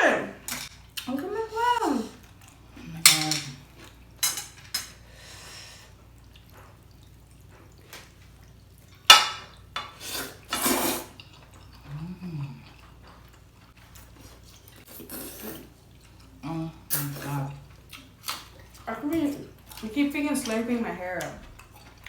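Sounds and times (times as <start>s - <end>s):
utensils clinking against bowl: 3.0s - 3.6s, 4.2s - 5.0s
person slurping: 10.0s - 12.8s, 14.9s - 15.8s
person humming: 11.9s - 12.6s.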